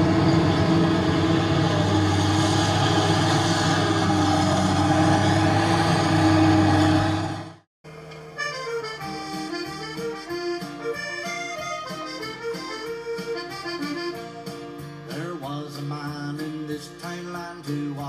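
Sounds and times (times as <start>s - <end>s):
accordion playing lively tune: 8.3s - 15.1s
rhythmic backing music: 8.5s - 18.0s.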